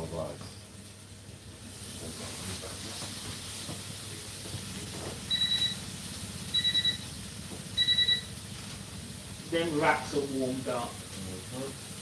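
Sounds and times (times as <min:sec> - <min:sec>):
low running hum and hiss: 0:00.0 - 0:12.0
electronic appliance beeps: 0:05.2 - 0:08.4.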